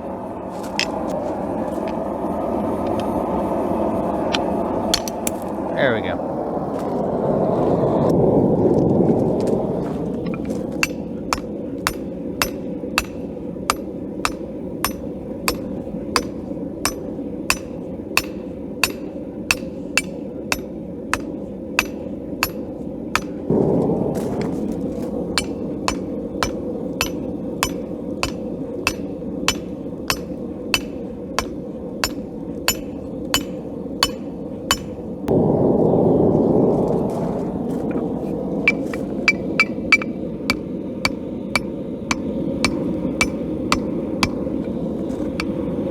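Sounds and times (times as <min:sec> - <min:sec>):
hammer striking steel on anvil: 0:10.8 - 0:23.5, 0:25.4 - 0:35.3, 0:38.7 - 0:45.7.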